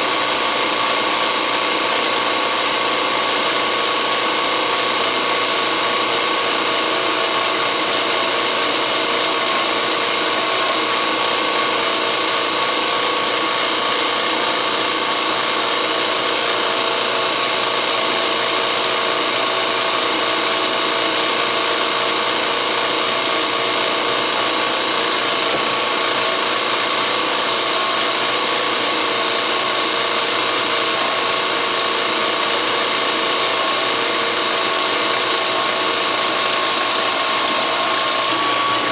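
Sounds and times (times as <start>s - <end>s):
drill press drilling steel: 0.0s - 38.9s.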